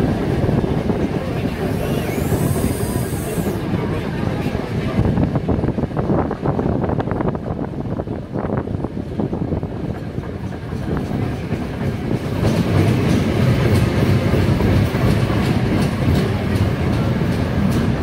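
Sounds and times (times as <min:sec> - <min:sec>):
train rumble: 0:00.0 - 0:18.0.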